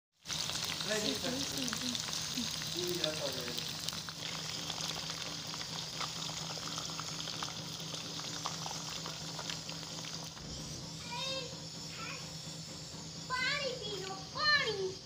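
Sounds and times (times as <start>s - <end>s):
food sizzling in hot oil: 0.1s - 15.0s
oil spattering crackles: 0.2s - 10.4s.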